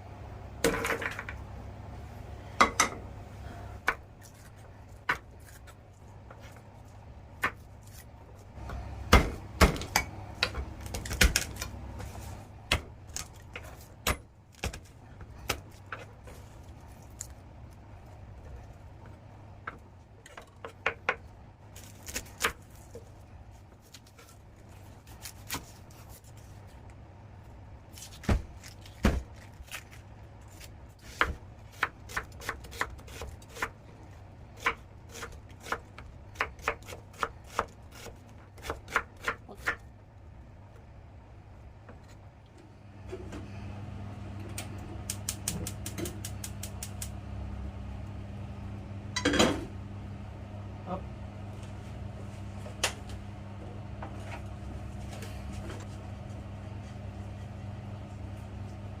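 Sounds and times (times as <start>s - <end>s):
low hum: 40.0s - 59.0s.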